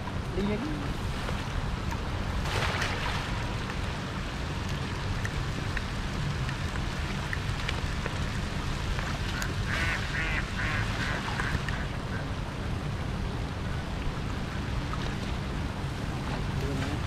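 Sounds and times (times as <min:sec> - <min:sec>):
rain hiss: 0:00.0 - 0:17.0.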